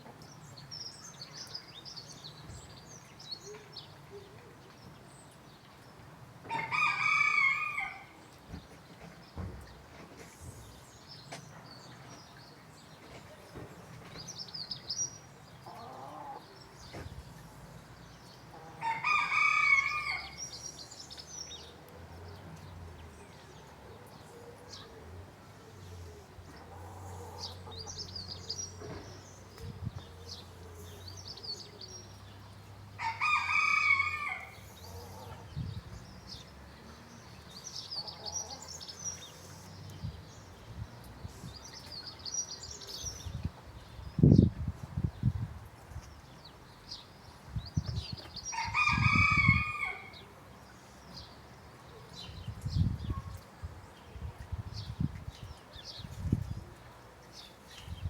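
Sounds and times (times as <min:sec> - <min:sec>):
rooster crowing: 0:06.5 - 0:08.2, 0:18.8 - 0:20.4, 0:33.0 - 0:34.6.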